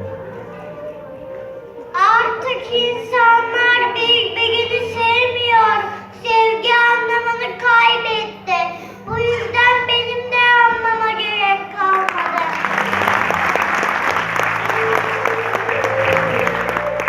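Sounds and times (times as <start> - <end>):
instrumental accompaniment: 0.0 - 17.0
child singing: 2.0 - 12.4.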